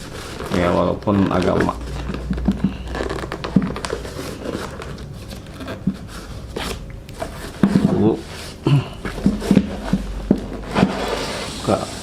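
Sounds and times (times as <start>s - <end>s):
packaging tearing: 0.0s - 6.8s
packaging rustling and scraping: 0.0s - 12.0s.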